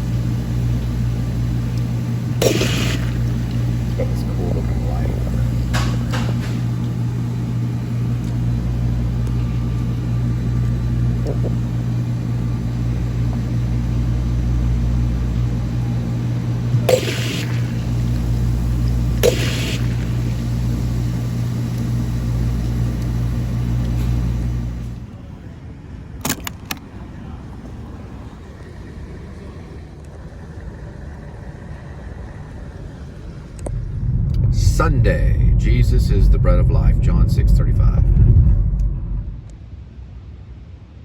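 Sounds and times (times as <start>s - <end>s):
short hissing sounds: 2.4s - 3.7s, 16.9s - 18.3s, 19.2s - 20.5s
car cabin rumble while driving: 2.4s - 6.2s, 32.3s - 39.6s.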